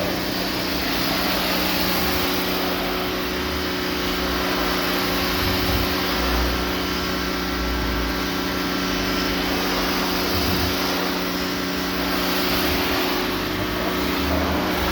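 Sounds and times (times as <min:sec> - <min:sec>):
pressure washer motor hum: 0:00.0 - 0:14.9
water spray hissing: 0:08.8 - 0:14.9.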